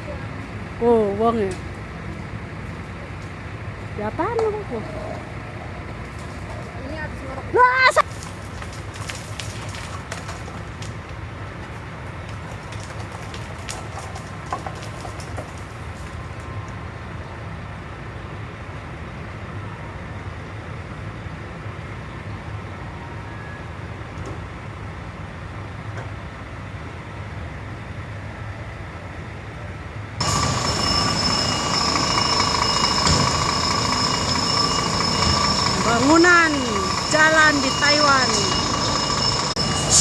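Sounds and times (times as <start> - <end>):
heavy machinery rumble: 30.2 - 40.0
high-pitched mechanical whine: 30.2 - 40.0.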